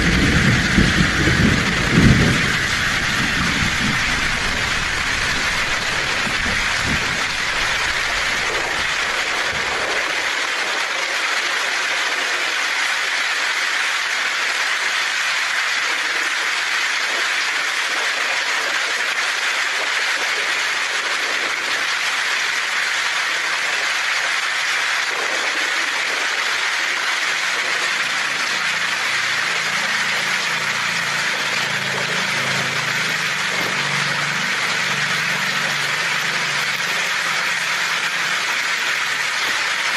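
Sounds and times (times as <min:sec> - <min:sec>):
low thunder rumble: 0:00.0 - 0:10.0
heavy rain on a tin roof: 0:00.0 - 0:39.9.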